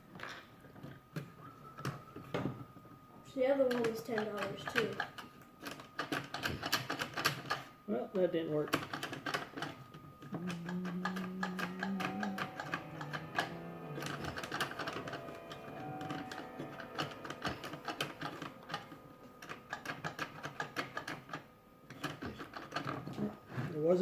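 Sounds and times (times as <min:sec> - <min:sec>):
toy mechanism clicking and rattling: 0:03.6 - 0:07.7, 0:08.6 - 0:23.2
low steady drone: 0:10.3 - 0:23.4.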